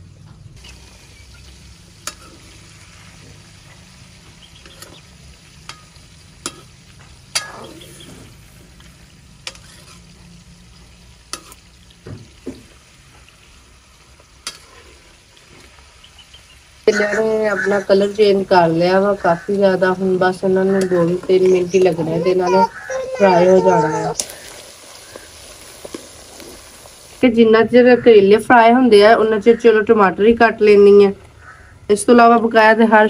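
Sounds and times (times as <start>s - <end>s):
vegetables sizzling in wok: 0.0s - 33.0s
metal spoon clinking on pan: 2.0s - 2.5s, 5.6s - 6.7s, 7.3s - 7.8s.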